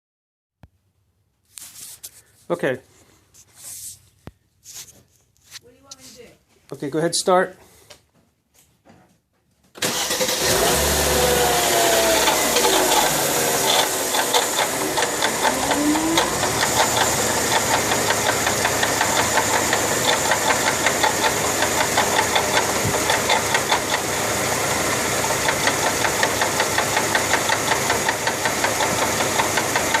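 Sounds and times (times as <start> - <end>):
car engine starting and idling: 9.8 - 30.0
wavering whine: 12.1 - 20.0
rhythmic knocking rattle: 12.2 - 24.2, 25.2 - 30.0.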